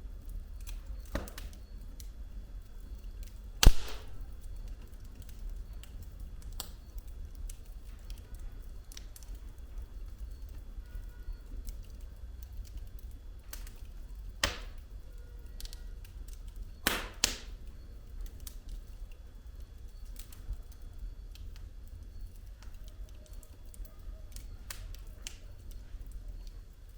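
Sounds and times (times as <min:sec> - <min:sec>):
firewood crackling and popping: 0:00.0 - 0:26.9
loud wood cracks: 0:03.6 - 0:04.5
low steady rumble: 0:03.6 - 0:04.5.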